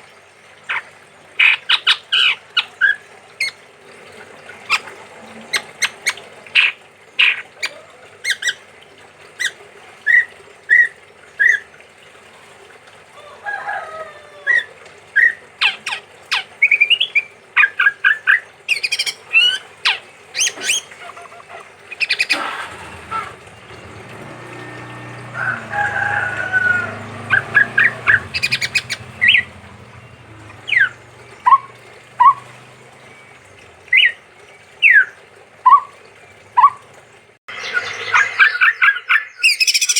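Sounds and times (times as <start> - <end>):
bird calling sharp notes: 14.4 - 34.2.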